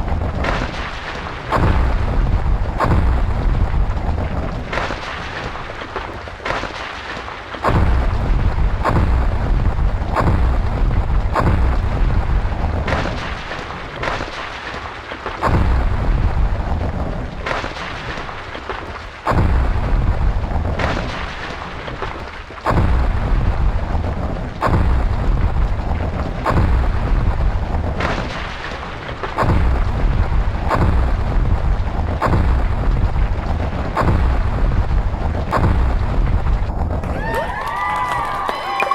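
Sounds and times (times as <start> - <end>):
deep rumbling bursts: 0.0 - 6.4, 7.6 - 14.7, 15.4 - 38.4.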